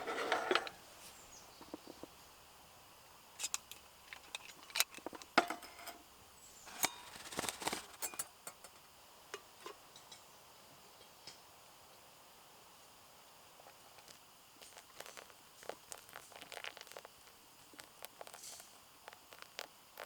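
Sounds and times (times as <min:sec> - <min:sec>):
small hard objects clicking: 0:14.0 - 0:20.0.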